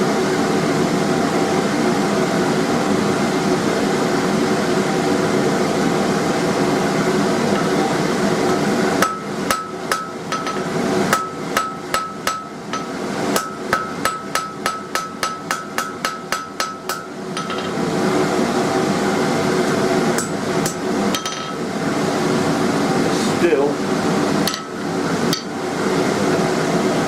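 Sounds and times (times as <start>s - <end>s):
hammer striking steel on anvil: 9.0s - 17.8s, 20.2s - 21.6s, 24.4s - 25.6s.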